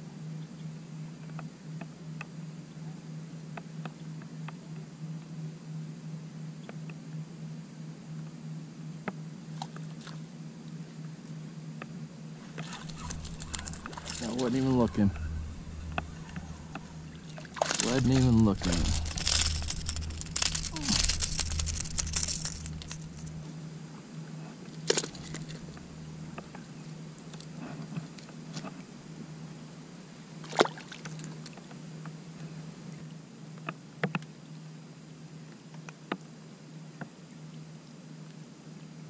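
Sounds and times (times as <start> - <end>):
steady low hum: 0.0 - 30.4
faint water sounds: 9.1 - 11.4, 12.2 - 33.7.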